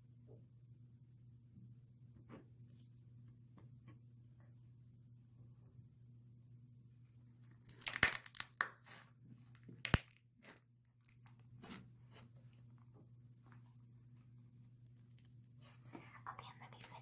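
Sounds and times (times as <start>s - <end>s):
slime crackling: 7.7s - 9.0s.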